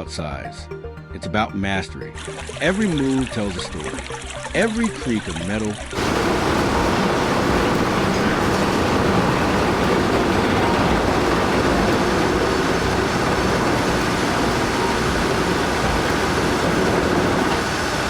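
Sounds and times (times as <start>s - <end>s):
heavy vehicle moving: 5.9s - 18.0s.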